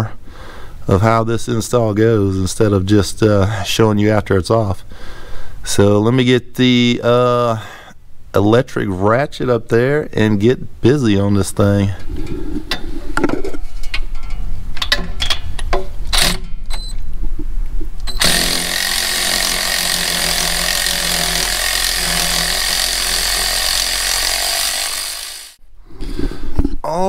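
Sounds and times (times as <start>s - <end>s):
electric ratchet motor running: 18.2s - 25.6s.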